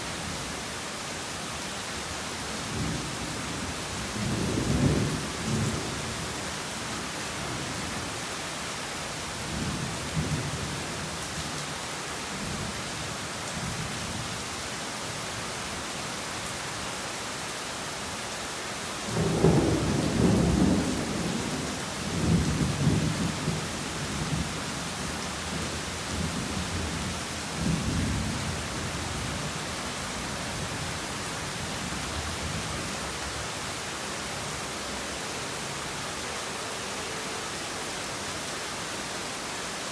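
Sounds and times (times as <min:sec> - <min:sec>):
heavy rain falling: 0:00.0 - 0:39.9
thunder rumbling: 0:19.1 - 0:24.5.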